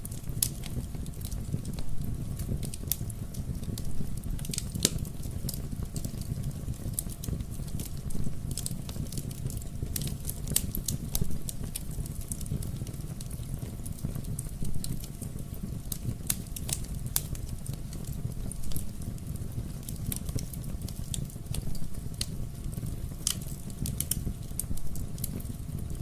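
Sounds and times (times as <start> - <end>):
wood fire crackling and popping: 0.0 - 26.0.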